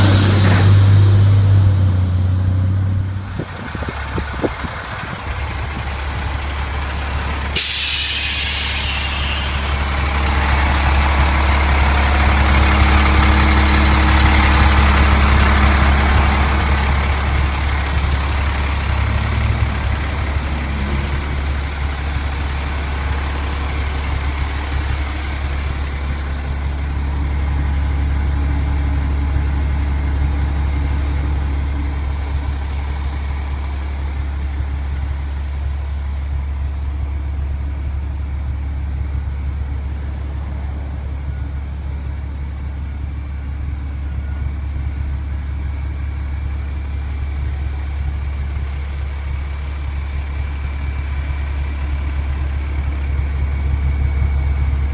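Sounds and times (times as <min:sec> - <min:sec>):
diesel engine idling: 0:00.0 - 0:54.9
hiss: 0:07.6 - 0:10.3.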